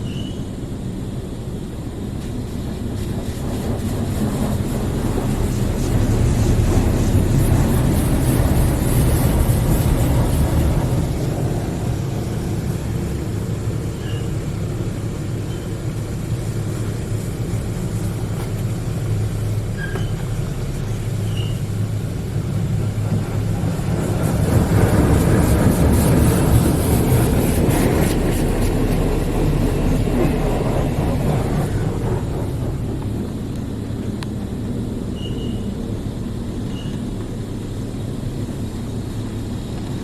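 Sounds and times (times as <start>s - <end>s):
faint squeaks: 14.0s - 14.4s, 19.7s - 20.3s, 21.2s - 21.7s.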